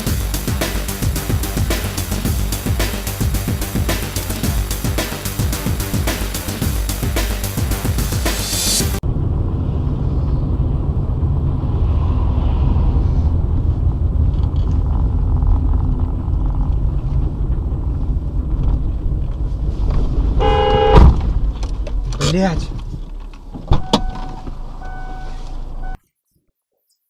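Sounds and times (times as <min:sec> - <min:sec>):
car road and engine rumble: 0:00.0 - 0:26.0
car horn: 0:20.4 - 0:21.1, 0:23.7 - 0:26.0.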